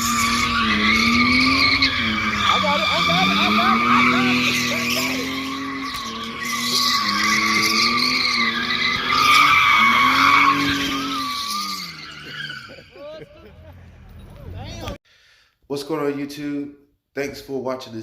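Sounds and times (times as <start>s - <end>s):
car engine at high revs: 0.0s - 12.9s
tyres squealing: 0.0s - 15.0s.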